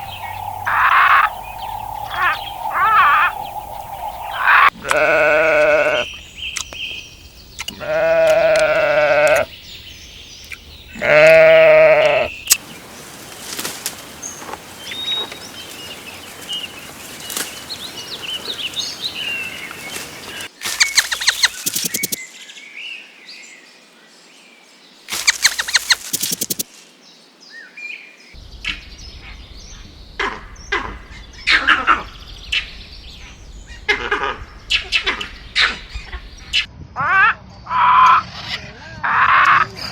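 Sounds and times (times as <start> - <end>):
faint chirps: 0.0 - 8.6, 9.3 - 22.2, 25.1 - 26.8
livestock bleating: 4.7 - 6.1, 7.7 - 9.5, 10.9 - 12.4
fast sharp clicking pulses: 20.8 - 22.2, 25.2 - 26.7.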